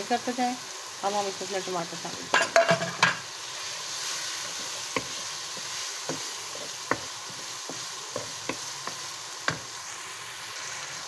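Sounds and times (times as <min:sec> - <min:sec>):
meat sizzling in a wok: 0:00.0 - 0:11.0
wooden spoon knocking pan: 0:04.9 - 0:09.7.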